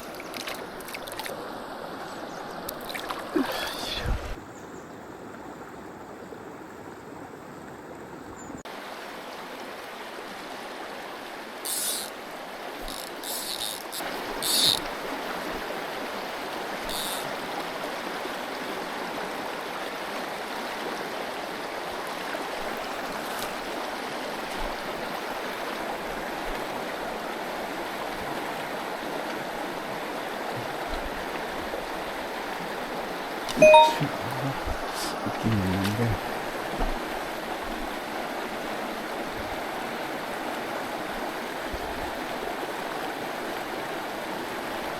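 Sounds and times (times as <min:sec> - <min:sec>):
sharp water splashes: 0:00.0 - 0:01.4, 0:02.7 - 0:03.7
stream water running over rocks: 0:00.0 - 0:04.4, 0:07.7 - 0:44.9.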